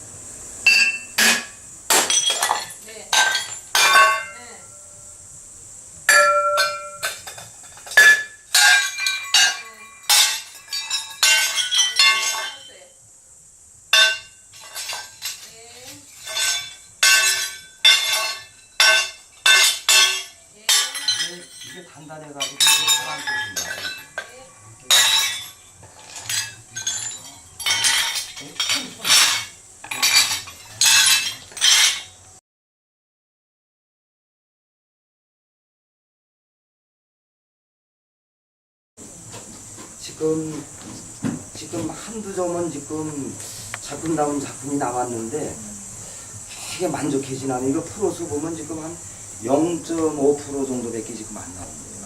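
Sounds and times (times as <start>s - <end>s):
ceramic pieces clinking: 0.7s - 4.8s, 6.1s - 12.7s, 14.0s - 32.2s.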